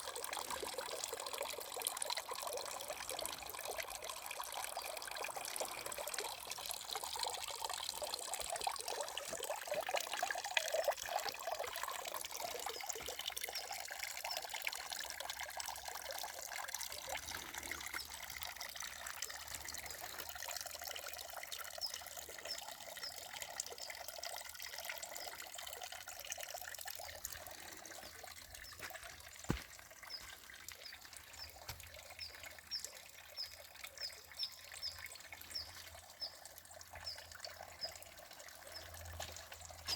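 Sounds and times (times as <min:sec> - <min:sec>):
water trickling down cascade: 0:00.0 - 0:39.9.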